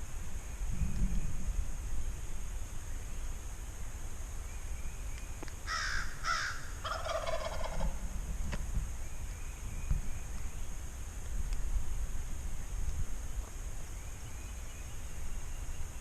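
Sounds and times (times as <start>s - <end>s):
low wind rumble: 0.0s - 16.0s
wild turkey gobbling: 5.7s - 8.0s.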